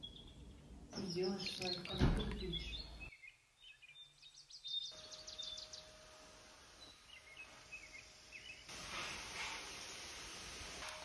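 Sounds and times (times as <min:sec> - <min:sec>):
faint birdsong chirps: 0:00.0 - 0:08.7.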